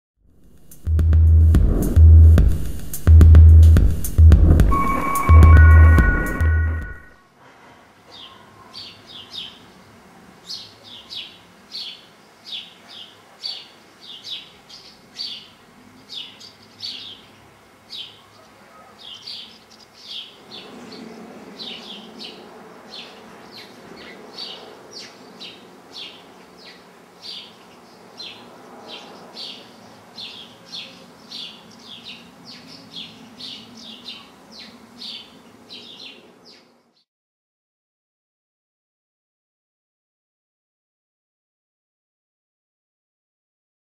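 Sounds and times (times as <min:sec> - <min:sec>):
small bird chirping: 0:10.5 - 0:37.0.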